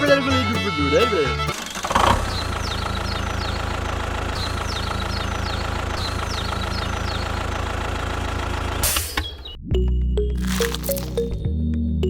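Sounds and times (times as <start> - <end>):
engine idling with knocking: 1.5 - 8.8.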